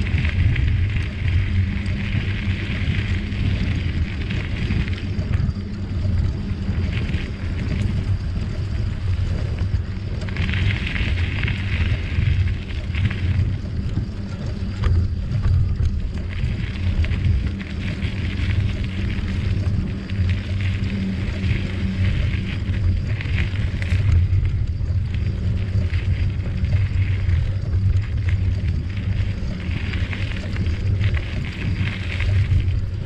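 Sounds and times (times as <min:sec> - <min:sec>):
tyres rolling over trail: 0:00.0 - 0:33.0
wind buffeting microphone: 0:00.0 - 0:33.0.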